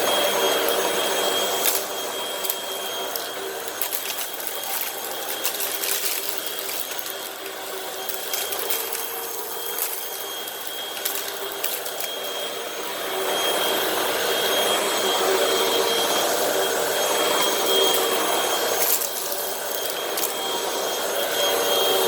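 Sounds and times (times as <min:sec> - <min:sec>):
vacuum cleaner motor whine: 0:00.0 - 0:22.0
debris crackling in vacuum: 0:00.1 - 0:12.4, 0:17.7 - 0:20.5.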